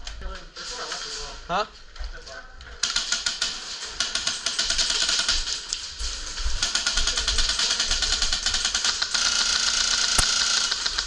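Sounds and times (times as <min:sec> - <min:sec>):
airsoft guns firing full-auto: 0:02.8 - 0:05.6, 0:06.6 - 0:11.0.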